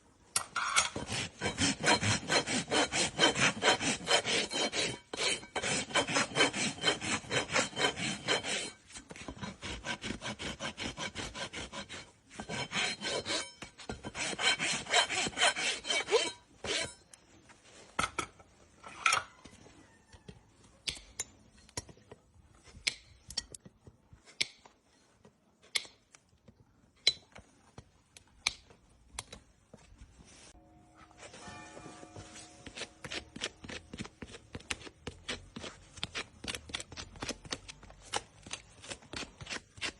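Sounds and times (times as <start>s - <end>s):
rasp filing a hoof: 0.7s - 17.1s, 32.2s - 37.3s, 38.1s - 39.9s.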